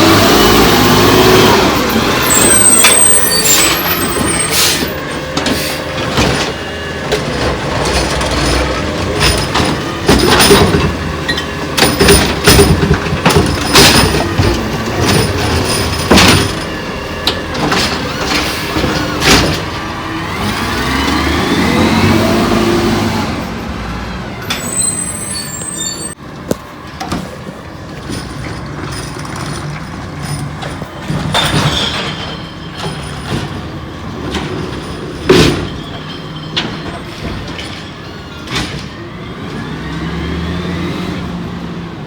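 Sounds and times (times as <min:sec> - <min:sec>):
garbage truck diesel engine running: 0:00.0 - 0:42.0
loud clanks and clatters: 0:01.7 - 0:21.2, 0:26.0 - 0:39.0.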